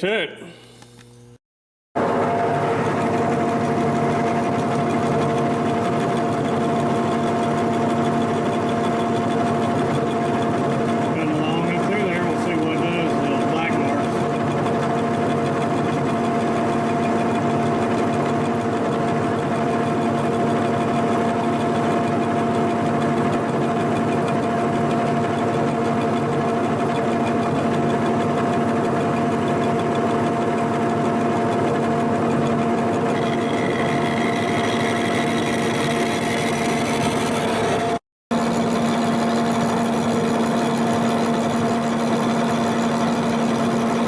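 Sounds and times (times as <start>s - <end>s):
milling machine running: 2.0s - 25.2s, 28.8s - 44.0s.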